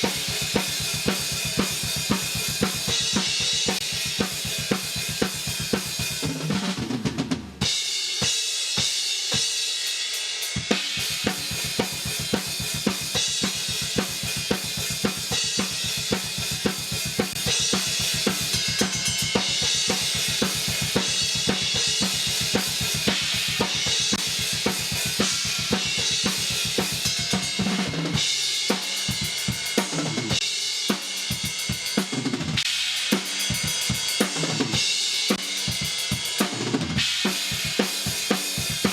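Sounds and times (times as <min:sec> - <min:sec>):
fast double bass kick drum: 0:00.0 - 0:06.3, 0:11.0 - 0:28.3
cymbals: 0:00.0 - 0:06.8, 0:07.6 - 0:38.9
snare drum: 0:00.0 - 0:07.6.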